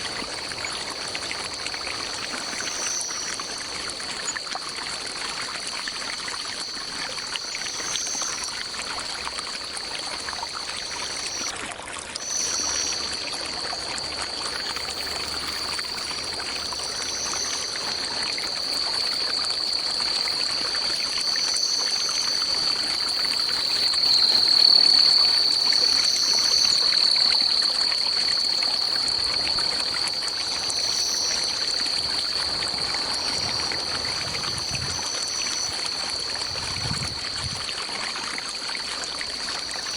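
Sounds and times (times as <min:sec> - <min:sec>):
forest stream running water: 0:00.0 - 0:39.9
high-pitched insect drone: 0:00.1 - 0:04.4, 0:06.0 - 0:11.5, 0:12.2 - 0:37.7.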